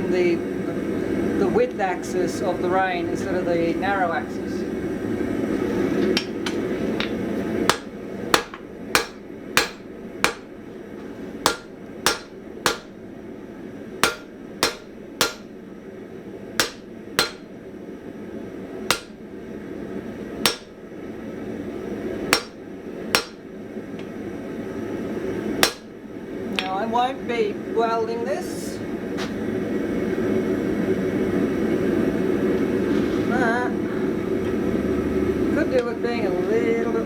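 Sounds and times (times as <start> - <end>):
hammer ringing on anvil: 7.7 - 10.5, 11.5 - 12.9, 14.0 - 15.5, 16.6 - 17.5, 18.9 - 19.2, 20.4 - 20.8, 22.3 - 22.6, 23.2 - 23.4, 25.6 - 25.9.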